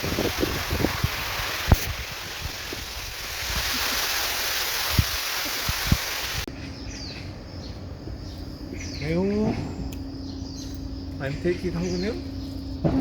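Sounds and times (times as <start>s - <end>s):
steady rushing outdoor noise: 0.0s - 8.8s.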